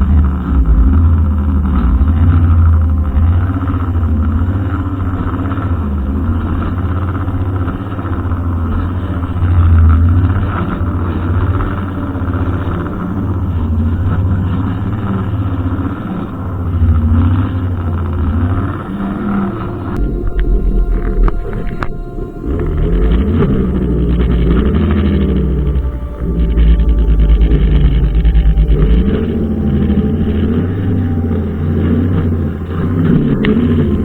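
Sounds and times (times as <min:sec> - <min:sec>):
brushcutter engine running: 0:00.0 - 0:34.0.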